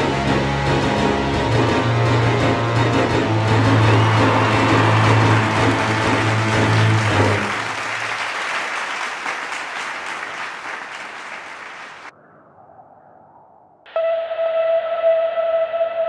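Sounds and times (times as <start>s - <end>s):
music: 0.0s - 8.0s, 13.9s - 16.0s
audience applause: 3.3s - 12.1s.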